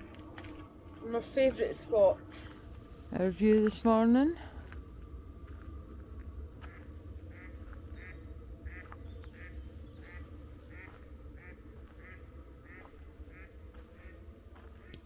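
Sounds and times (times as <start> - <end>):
low steady rumble: 0.0 - 15.0
duck quacking: 6.7 - 14.2.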